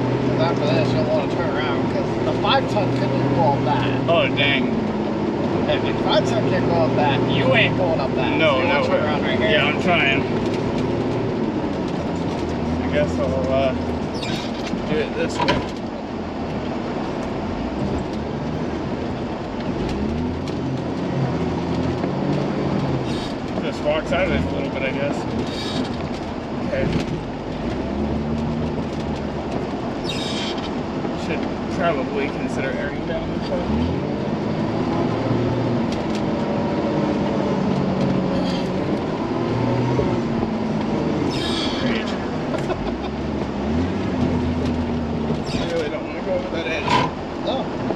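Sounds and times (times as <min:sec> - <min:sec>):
truck engine under load: 0:00.0 - 0:47.9.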